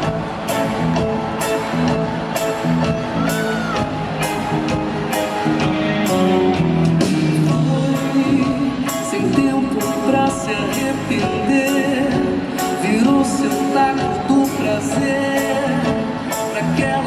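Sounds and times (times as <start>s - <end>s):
crowd voices and whoops: 0.0s - 7.0s
live band music: 0.0s - 17.0s.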